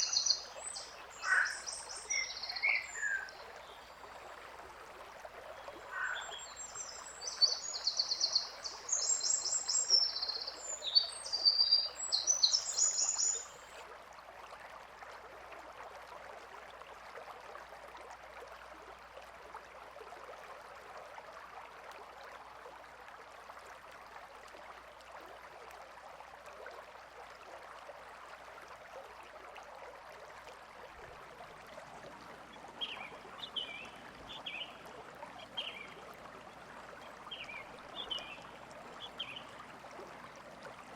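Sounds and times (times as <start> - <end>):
birds chirping: 0.0 - 4.1, 5.6 - 13.8, 37.0 - 39.6
stream flowing: 0.0 - 40.9.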